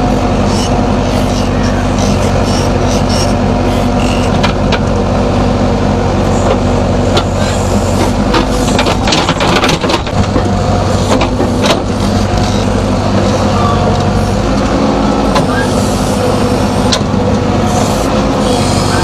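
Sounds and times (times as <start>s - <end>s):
diesel engine running: 0.0s - 19.0s
sharp knocks and clanks: 8.0s - 13.4s.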